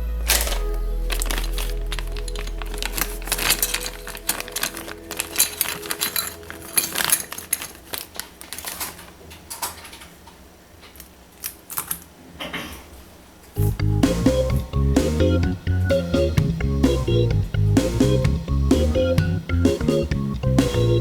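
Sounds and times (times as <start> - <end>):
background music: 0.0 - 8.8, 13.6 - 21.0
plastic parts clicking and rattling: 0.2 - 12.2.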